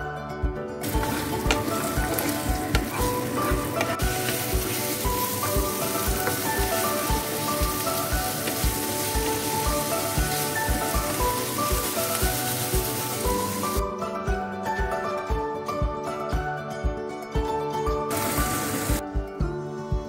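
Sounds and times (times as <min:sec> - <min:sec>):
background music with steady beat: 0:00.0 - 0:20.0
wooden spatula stirring: 0:00.8 - 0:13.8
chicken and onion sizzling: 0:00.8 - 0:13.9, 0:18.1 - 0:19.0.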